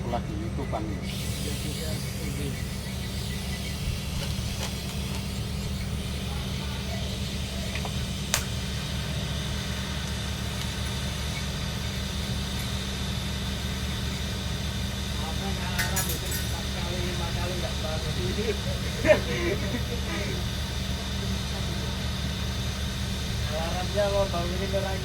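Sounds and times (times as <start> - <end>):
low machine hum with hiss: 0.0 - 25.0
sharp click: 7.7 - 8.6.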